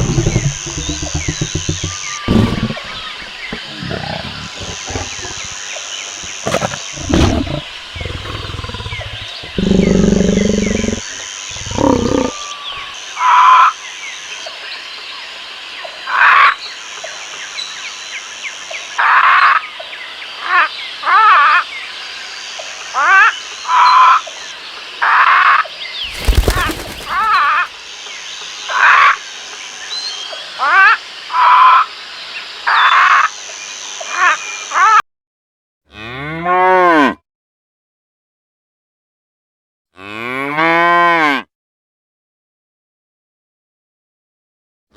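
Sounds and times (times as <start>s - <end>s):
lion roaring: 0.0s - 5.6s, 6.2s - 12.9s
short higher animal calls: 0.0s - 5.6s.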